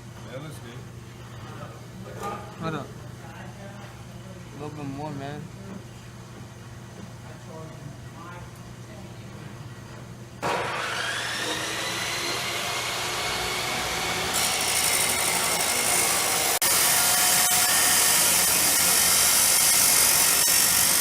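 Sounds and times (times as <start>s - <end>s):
pneumatic sander whining: 10.4s - 21.0s.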